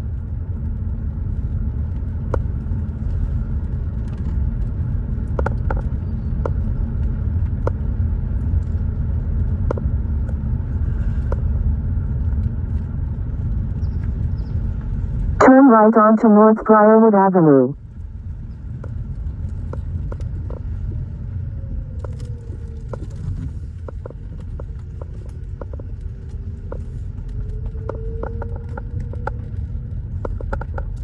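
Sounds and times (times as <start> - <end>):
car road and engine rumble: 18.2 - 31.0.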